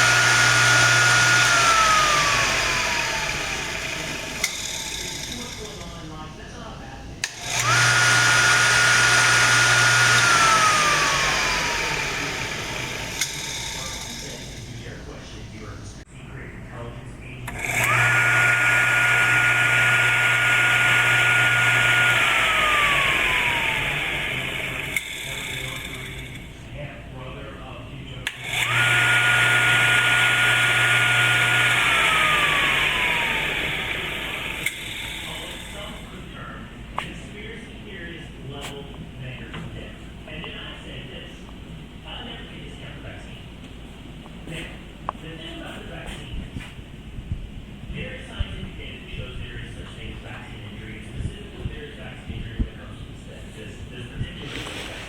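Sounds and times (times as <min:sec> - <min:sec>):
grinder motor whining: 0:00.0 - 0:06.0, 0:07.2 - 0:14.8, 0:17.5 - 0:26.7, 0:28.2 - 0:36.3.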